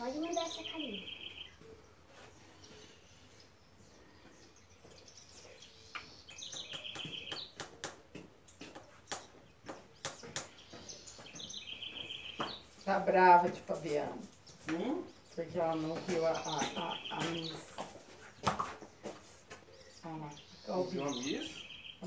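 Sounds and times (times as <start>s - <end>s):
small bird chirping: 0.0s - 13.1s
sharp scraping knocks on hoof: 6.9s - 12.7s, 15.8s - 19.7s.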